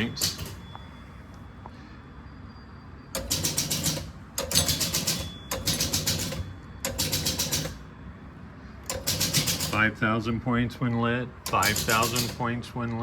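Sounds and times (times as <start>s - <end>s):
pinball machine rapid clicking: 0.0s - 0.7s, 3.2s - 7.9s, 8.9s - 10.0s, 11.4s - 12.6s.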